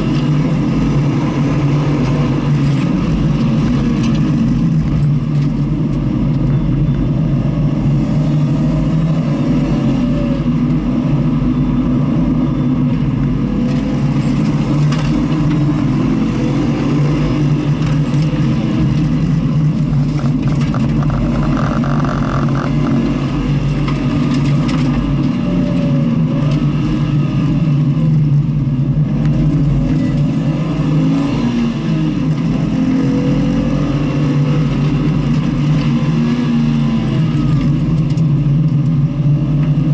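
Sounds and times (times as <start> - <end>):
car engine revving: 13.3 - 28.0.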